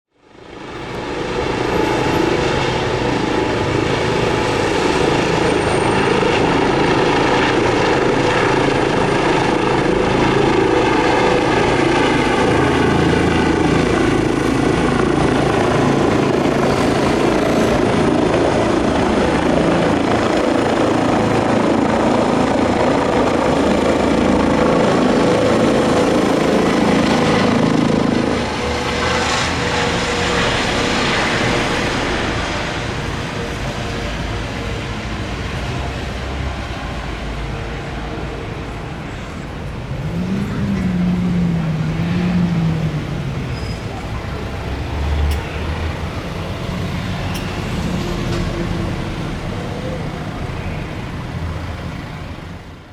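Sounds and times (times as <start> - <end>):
helicopter turbine whine: 0.2 - 52.9.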